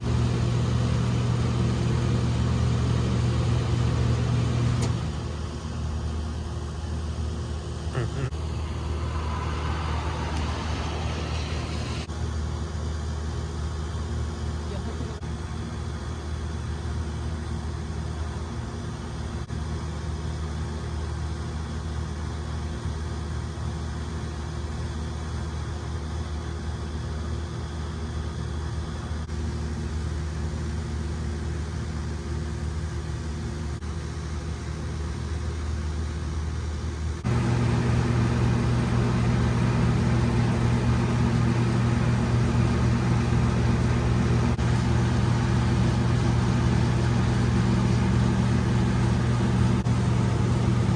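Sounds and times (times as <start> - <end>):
motor humming: 0.0 - 6.2, 7.9 - 12.1, 37.2 - 50.9.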